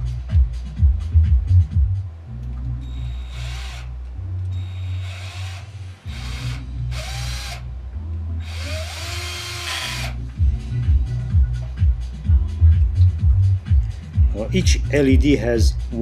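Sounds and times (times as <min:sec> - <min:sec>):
background music with low beat: 0:00.0 - 0:16.0
drill boring into plastic: 0:03.0 - 0:03.9, 0:04.6 - 0:07.6, 0:08.4 - 0:10.2.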